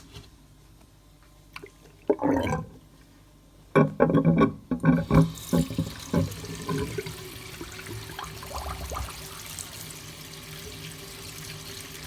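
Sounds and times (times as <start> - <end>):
water pump humming: 4.8 - 12.0
kitchen faucet running: 5.0 - 12.0.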